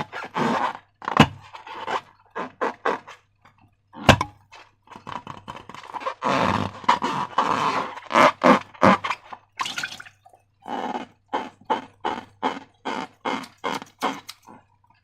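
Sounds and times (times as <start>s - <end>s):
slime squelching by hand: 9.0s - 10.4s.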